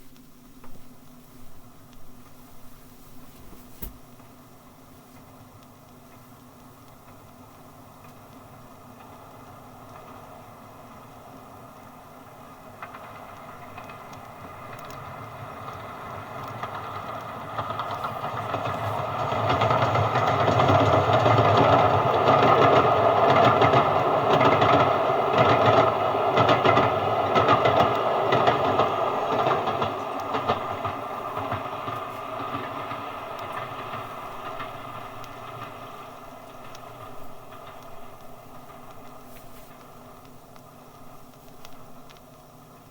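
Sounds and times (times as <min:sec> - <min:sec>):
train passing: 0:11.9 - 0:42.1
wheels clattering over rail joints: 0:12.8 - 0:41.1.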